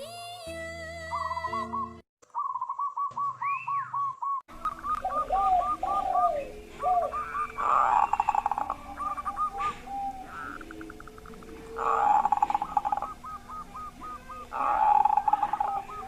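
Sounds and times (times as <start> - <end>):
doves cooing: 1.4 - 16.0
lower-pitched coos: 4.8 - 16.0.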